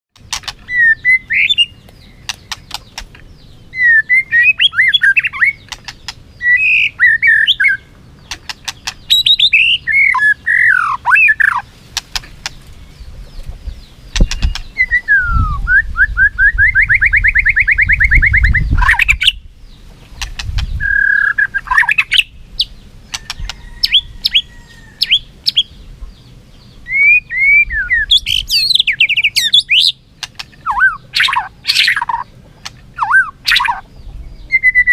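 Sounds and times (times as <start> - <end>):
bird rapid trill: 0.2 - 13.1, 13.7 - 15.3, 20.1 - 25.8, 26.8 - 33.9
bird whistled song: 0.4 - 11.7, 12.4 - 34.9
sharp clicks: 1.9 - 3.2, 12.0 - 12.6, 30.2 - 30.6.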